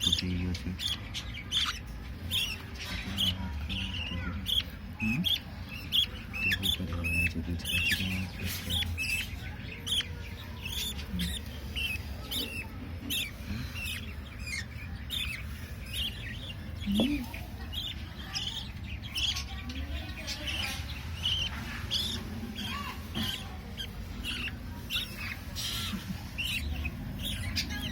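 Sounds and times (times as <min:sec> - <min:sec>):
budgerigar chicks chirping: 0:00.0 - 0:27.9.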